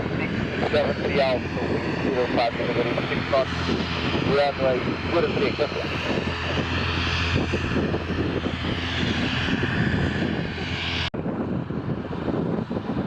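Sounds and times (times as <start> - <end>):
airliner engines running: 0.0 - 13.0
dull rumble: 0.0 - 13.0.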